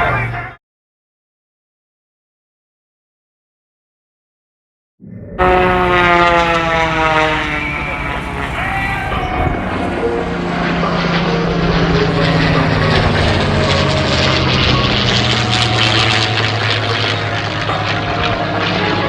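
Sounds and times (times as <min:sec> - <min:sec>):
propeller plane flying past: 0:05.3 - 0:19.0.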